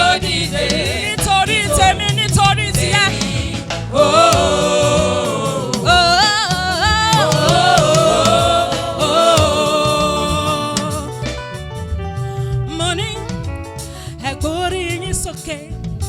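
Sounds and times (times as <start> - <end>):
person singing with vibrato: 0.0 - 11.5
band accompaniment: 0.0 - 16.0.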